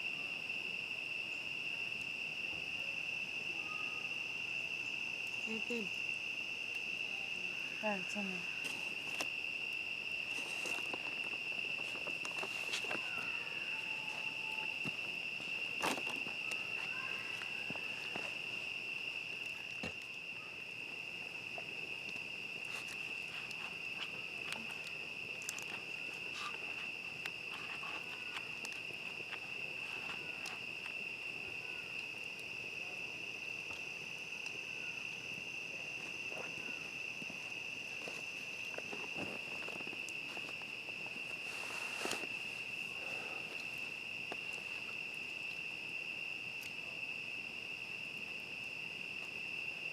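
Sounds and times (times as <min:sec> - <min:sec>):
crickets trilling: 0:00.0 - 0:49.9
campfire popping and crackling: 0:20.8 - 0:32.6.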